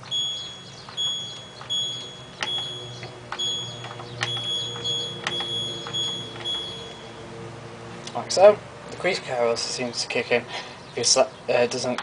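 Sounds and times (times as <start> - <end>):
button clicks: 0.0 - 7.0
short high beeps: 0.0 - 7.1.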